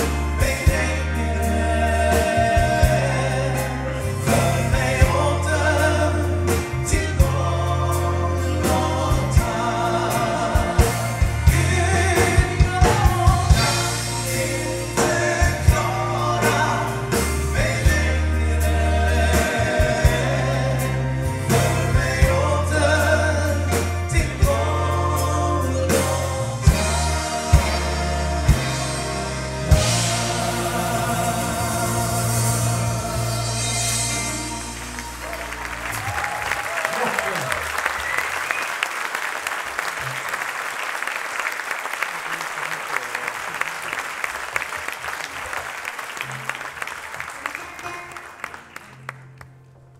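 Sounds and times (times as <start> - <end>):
steady bass line: 0.0 - 36.4
vocal group singing gospel: 0.0 - 37.4.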